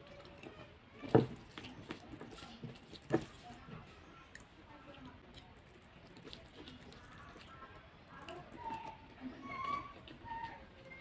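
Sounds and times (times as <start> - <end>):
person chewing food: 5.3 - 7.6.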